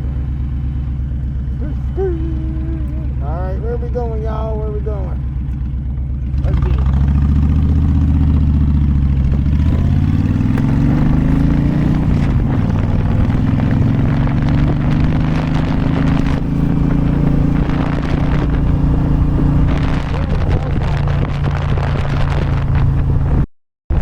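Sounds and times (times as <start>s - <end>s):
motorcycle engine pulling away: 4.4s - 23.4s
wind buffeting microphone: 7.6s - 24.0s.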